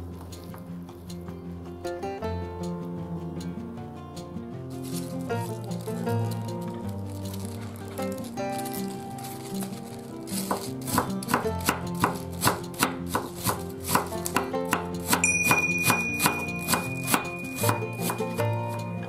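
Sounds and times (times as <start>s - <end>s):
soft background music: 0.0s - 19.0s
knife cutting cabbage on board: 8.6s - 15.2s, 15.8s - 18.7s.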